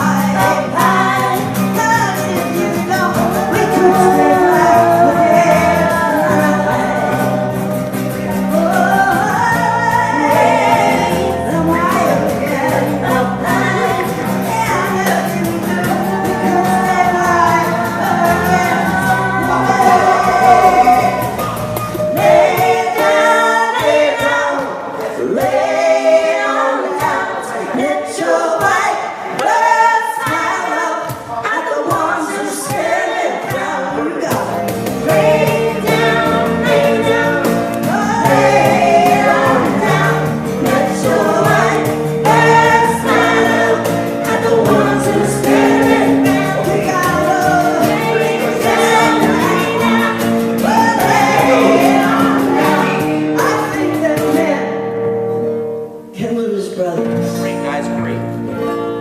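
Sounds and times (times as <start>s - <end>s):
bass and held chords: 0.0s - 23.2s, 34.4s - 54.7s
group singing in harmony: 0.0s - 54.9s.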